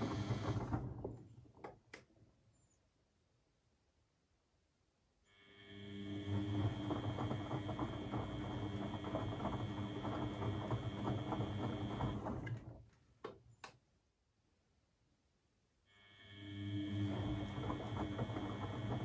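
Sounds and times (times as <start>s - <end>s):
washing machine drum tumbling: 0.0s - 1.9s, 6.2s - 12.9s, 17.0s - 19.0s.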